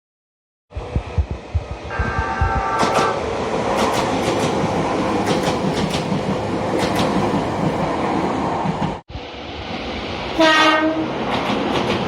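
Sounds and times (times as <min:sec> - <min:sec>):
train rumble: 0:00.7 - 0:12.0
train horn: 0:01.9 - 0:03.2, 0:10.4 - 0:11.2.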